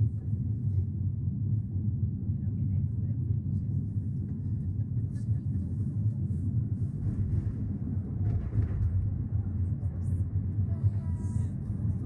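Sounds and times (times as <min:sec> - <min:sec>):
funicular carriage rumbling: 0:03.8 - 0:12.0.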